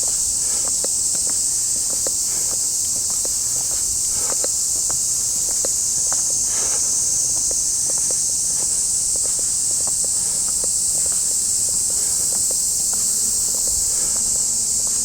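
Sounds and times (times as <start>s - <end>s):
cicada chorus: 0.0s - 15.0s
footsteps on path: 0.0s - 15.0s.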